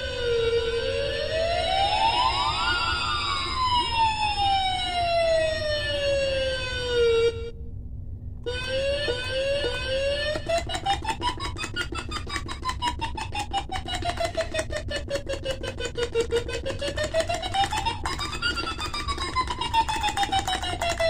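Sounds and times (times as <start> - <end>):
short electronic tones stepping upward: 0.0 - 7.5, 8.4 - 11.9, 13.0 - 21.0
siren-like electronic tone with echoes: 0.0 - 7.6, 8.4 - 11.9, 12.9 - 21.0
rapid electronic clicking: 8.4 - 21.0.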